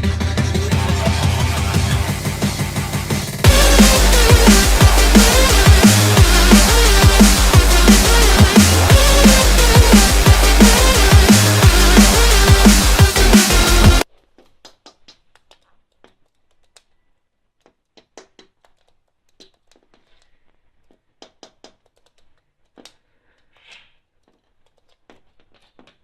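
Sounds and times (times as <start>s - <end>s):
faint clicks and taps: 17.6s - 23.5s, 24.2s - 26.0s.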